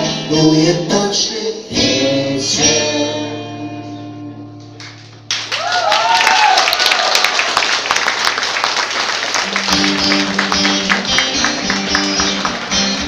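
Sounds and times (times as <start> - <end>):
live band instrumental music: 9.4 - 13.0.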